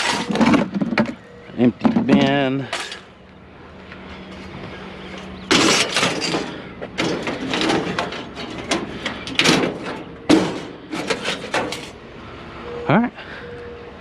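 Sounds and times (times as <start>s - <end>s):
scrap scraping and knocking: 0.0s - 1.1s, 5.5s - 11.9s.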